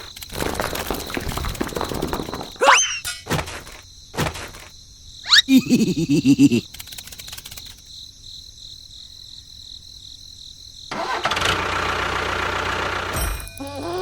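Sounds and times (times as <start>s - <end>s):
rapid clicks: 6.6s - 7.9s
engine running: 10.9s - 13.4s.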